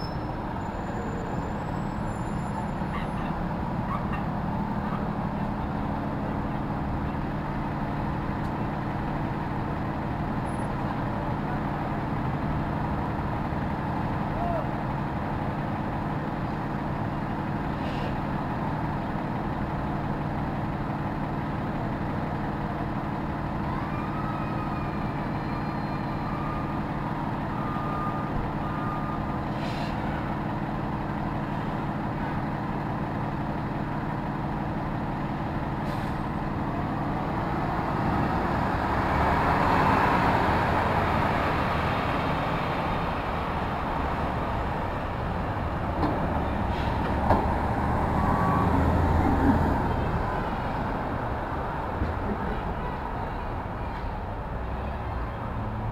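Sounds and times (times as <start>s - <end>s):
faint high squeals: 0.0s - 3.3s, 24.0s - 26.8s
vehicle engine idling: 0.0s - 39.2s
passing vehicle rush: 35.0s - 55.9s.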